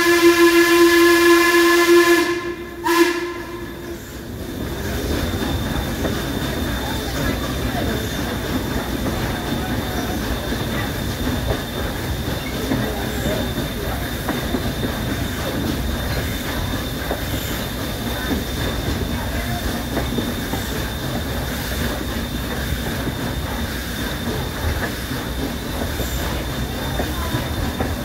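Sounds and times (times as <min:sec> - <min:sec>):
train rumbling and rattling: 0:00.0 - 0:28.0.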